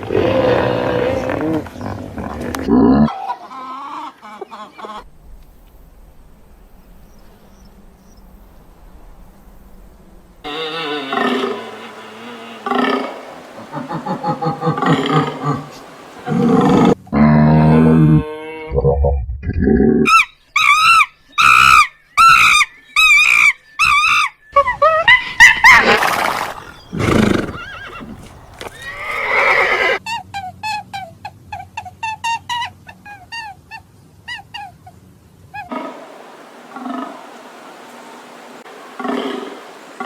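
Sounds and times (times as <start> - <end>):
sweeping animal calls: 6.8 - 17.0, 20.0 - 30.0, 35.6 - 40.0
wavering animal calls: 10.4 - 17.2, 26.6 - 30.0.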